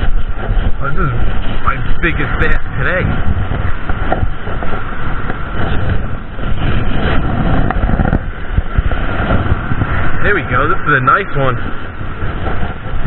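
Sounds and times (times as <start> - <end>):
surf washing on beach: 0.0 - 13.0
wind buffeting microphone: 0.0 - 13.0.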